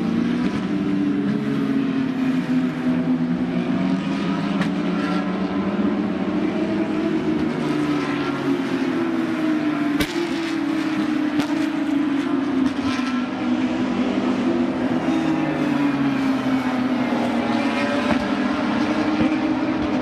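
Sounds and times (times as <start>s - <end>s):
race car engines running hard: 0.0s - 20.0s.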